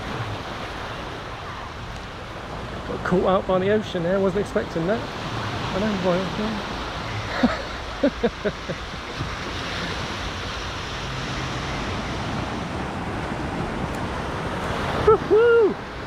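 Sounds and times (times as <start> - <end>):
waves breaking on beach: 0.0 - 16.0
wind on microphone: 4.3 - 16.0.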